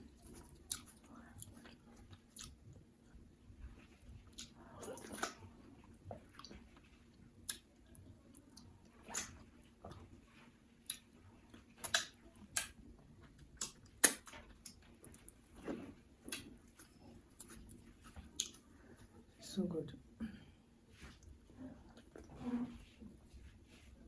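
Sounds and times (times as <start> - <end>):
wet chewing and mouth smacks: 0.0 - 10.2, 10.8 - 19.2.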